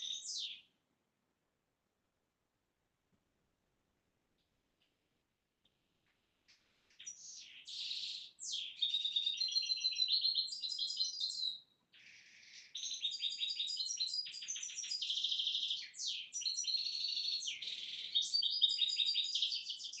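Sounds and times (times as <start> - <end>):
songbird twittering and trilling: 0.0 - 0.7, 6.4 - 20.0.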